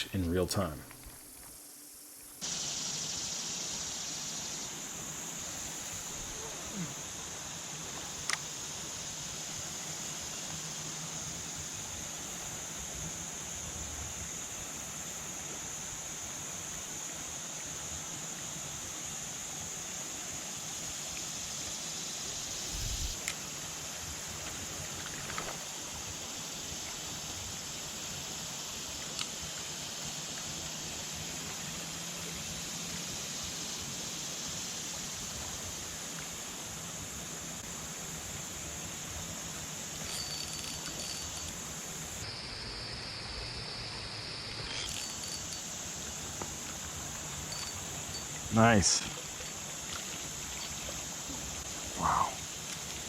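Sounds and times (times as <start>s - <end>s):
insects chorus: 0.0s - 53.0s
flowing water: 44.8s - 53.0s.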